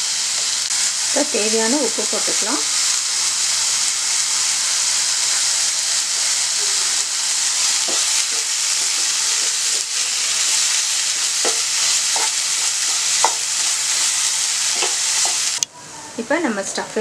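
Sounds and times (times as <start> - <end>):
meat sizzling in a pan: 0.0 - 15.6
wooden spatula scraping a pan: 10.7 - 15.5.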